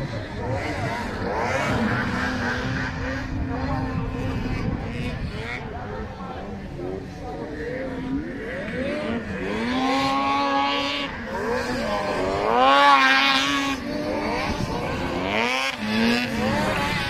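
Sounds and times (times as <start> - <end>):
snowmobile engines revving: 0.0 - 17.0.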